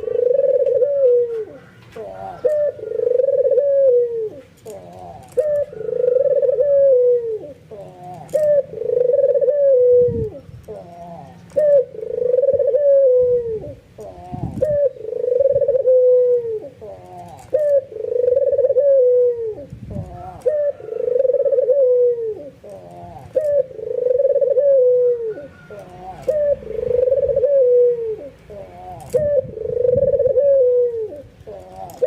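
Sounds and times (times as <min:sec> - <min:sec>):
dove cooing: 0:00.0 - 0:32.0.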